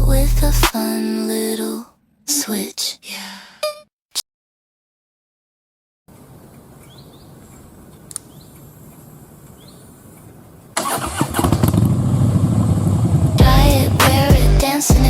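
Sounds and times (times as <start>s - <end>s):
motorcycle engine starting and running: 10.9s - 14.5s.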